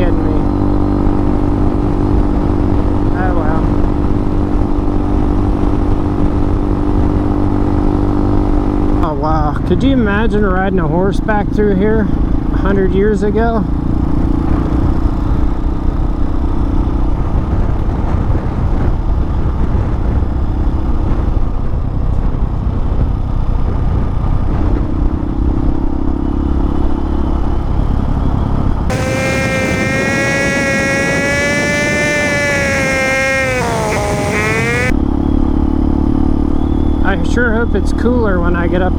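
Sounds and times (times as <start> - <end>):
wind rumble on microphone: 17.1 - 25.8, 28.9 - 34.9
motorcycle engine whine: 28.9 - 35.0.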